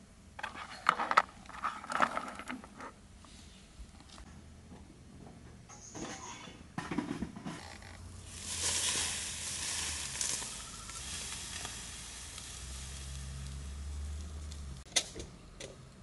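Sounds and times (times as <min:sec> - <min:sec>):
food sizzling in a pan: 0:08.3 - 0:14.5.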